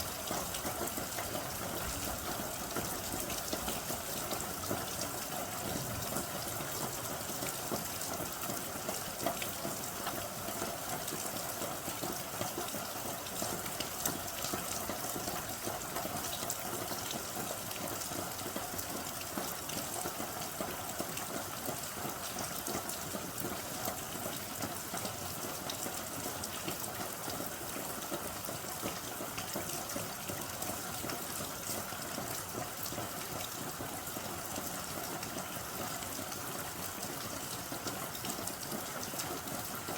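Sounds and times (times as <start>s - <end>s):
steady rain hiss: 0.0s - 24.3s.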